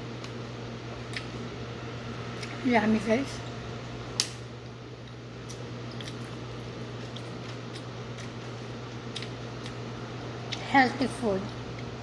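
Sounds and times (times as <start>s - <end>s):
steady low hum: 0.0s - 12.0s
person chewing food: 5.0s - 10.7s.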